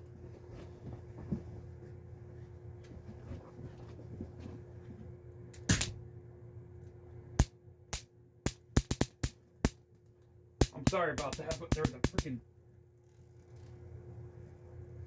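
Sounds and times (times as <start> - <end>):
electric fly swatter zapping: 8.5 - 9.4, 10.6 - 12.3.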